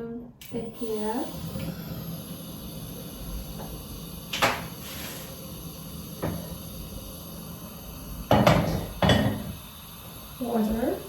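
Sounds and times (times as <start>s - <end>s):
steady low hum: 0.4s - 11.0s
loud clunk: 8.3s - 9.5s.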